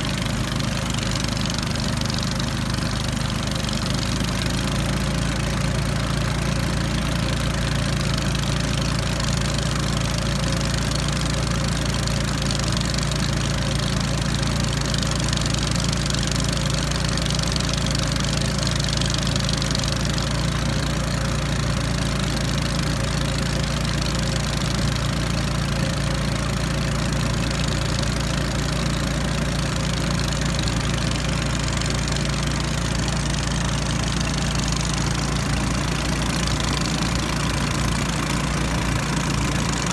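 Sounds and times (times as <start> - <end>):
outboard motor humming: 0.0 - 39.9.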